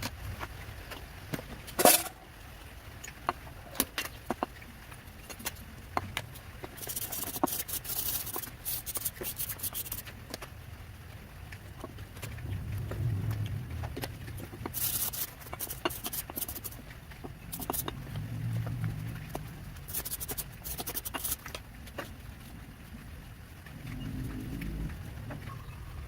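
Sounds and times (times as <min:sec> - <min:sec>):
metal parts clicking and clinking: 0:01.7 - 0:02.2.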